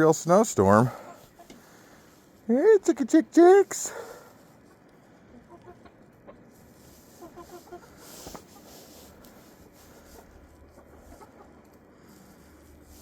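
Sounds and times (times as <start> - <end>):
hens clucking: 5.3 - 11.9.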